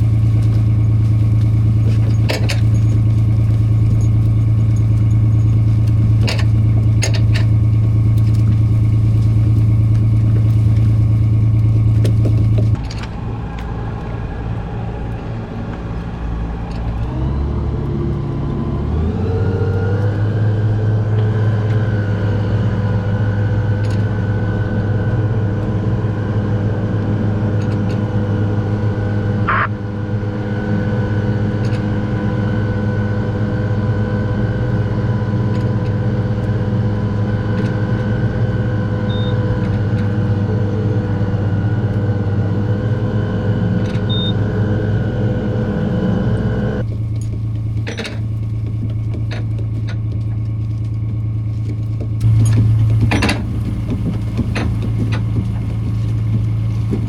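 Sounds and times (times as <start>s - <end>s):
boat engine speeding up: 0.0s - 57.0s
brief high-pitched sound: 29.5s - 29.7s.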